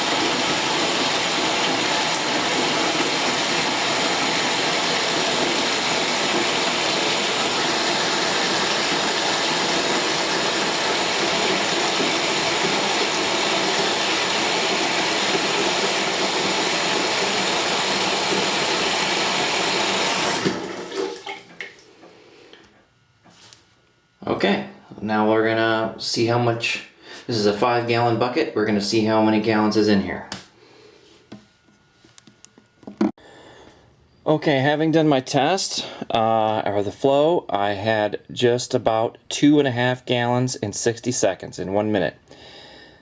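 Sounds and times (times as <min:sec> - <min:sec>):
water pouring into a bucket: 0:00.0 - 0:21.6.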